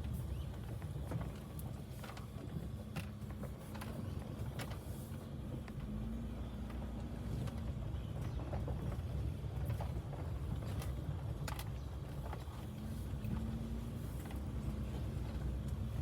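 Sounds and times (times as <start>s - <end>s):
van engine and tyres rumbling: 0.0s - 16.0s
small clicks and rattles: 7.4s - 13.5s.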